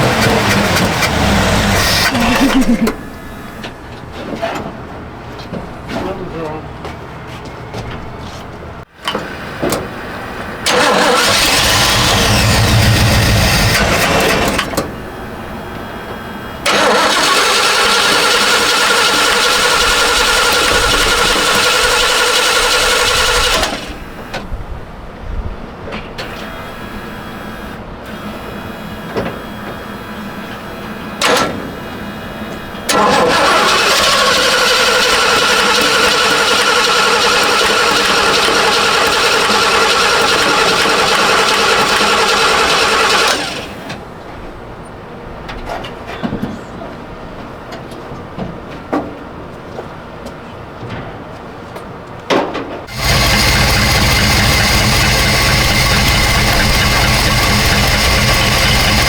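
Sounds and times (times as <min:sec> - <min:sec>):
engine cranking on starter: 0:00.0 - 0:04.6, 0:09.0 - 0:24.6, 0:26.2 - 0:44.2, 0:52.8 - 0:59.0.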